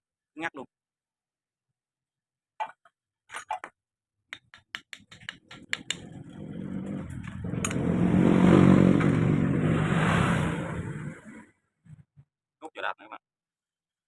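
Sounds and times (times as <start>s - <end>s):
motorcycle engine passing by: 5.6s - 11.6s.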